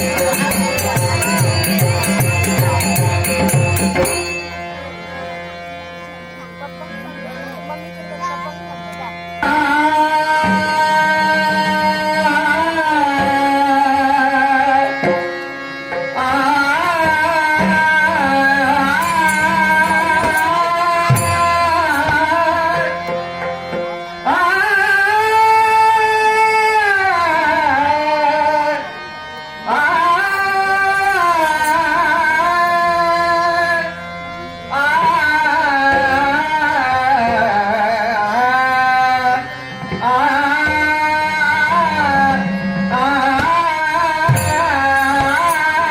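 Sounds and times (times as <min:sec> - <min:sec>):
hand drum and instruments: 0:00.0 - 0:04.8, 0:16.3 - 0:24.0, 0:39.8 - 0:45.9
man singing devotional song: 0:09.2 - 0:45.9.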